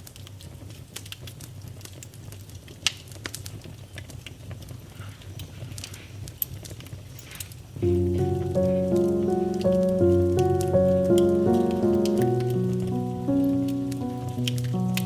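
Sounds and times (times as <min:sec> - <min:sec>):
wood fire crackling and popping: 0:00.1 - 0:08.5, 0:09.1 - 0:15.0
piano: 0:07.8 - 0:15.0.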